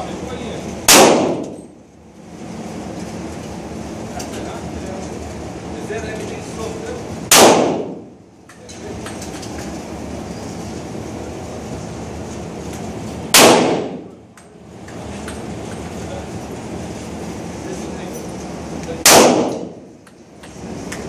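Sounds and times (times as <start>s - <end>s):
pistol shots: 0.8s - 1.7s, 7.3s - 8.1s, 13.3s - 14.2s, 19.0s - 19.8s.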